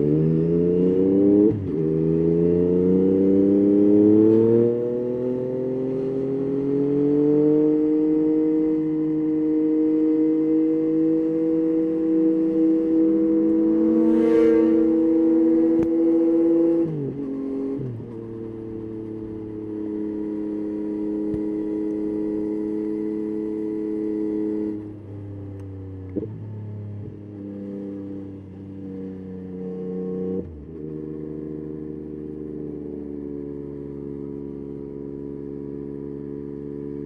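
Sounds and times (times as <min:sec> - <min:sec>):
motorcycle engine running: 0:08.0 - 0:37.0.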